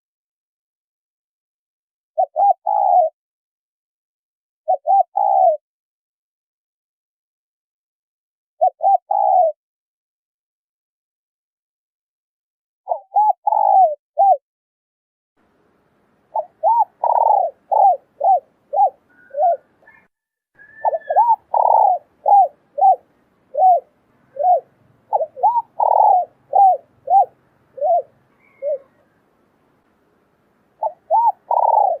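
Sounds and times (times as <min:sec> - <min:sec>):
dove cooing: 0:02.2 - 0:03.1, 0:04.7 - 0:05.6, 0:08.6 - 0:09.6, 0:12.9 - 0:14.4, 0:16.3 - 0:29.3, 0:30.8 - 0:32.0.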